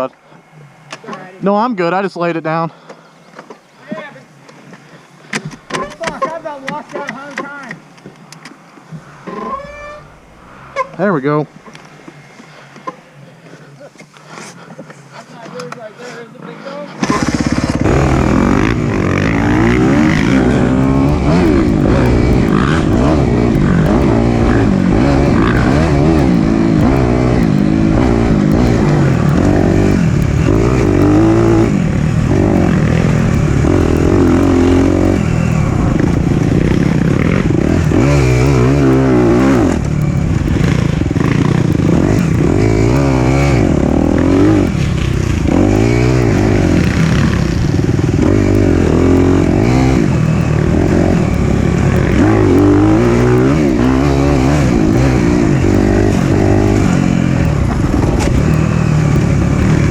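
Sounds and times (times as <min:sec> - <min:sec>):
dirt bike engine revving: 0:17.0 - 0:59.9.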